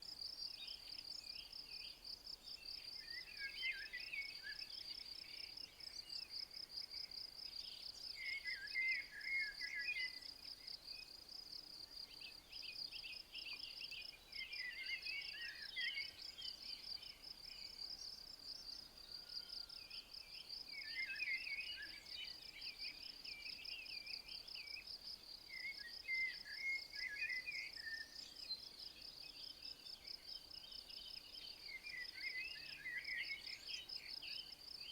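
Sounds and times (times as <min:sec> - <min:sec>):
songbird singing: 0:00.0 - 0:34.9.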